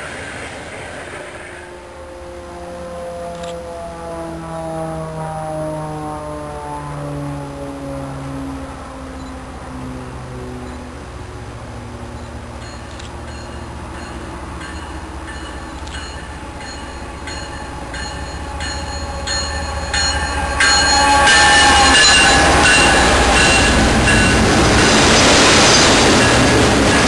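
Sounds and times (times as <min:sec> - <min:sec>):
train wheels clicking over rail joints: 0:12.0 - 0:27.0
high wheel squeal: 0:16.0 - 0:27.0.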